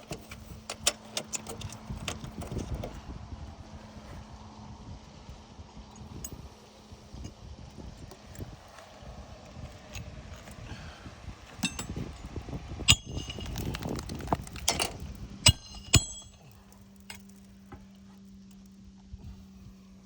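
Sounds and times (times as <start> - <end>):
low steady hum: 0.0 - 20.0
hammer striking metal bar: 11.6 - 12.0, 12.9 - 13.5, 15.5 - 16.4.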